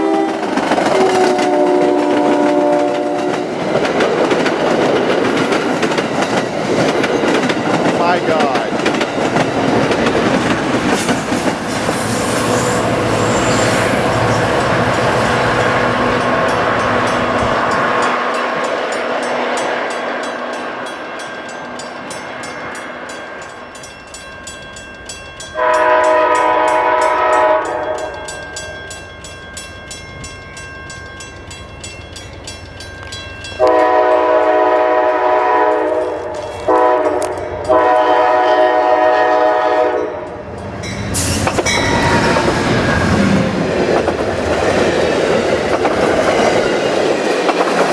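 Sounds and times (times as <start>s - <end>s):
locomotive air horn: 0.0s - 3.5s, 25.6s - 28.1s, 33.6s - 40.2s
train wheel and rail noise: 0.0s - 47.9s.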